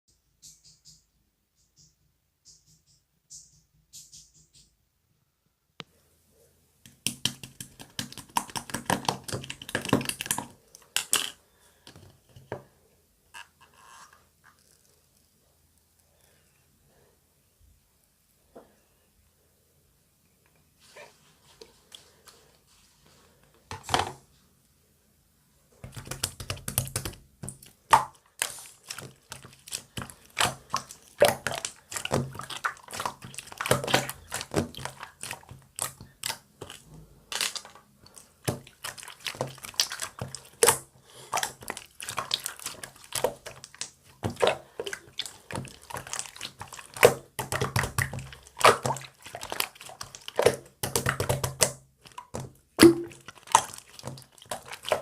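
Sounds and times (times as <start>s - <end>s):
slime squished by hand: 25.8s - 55.0s.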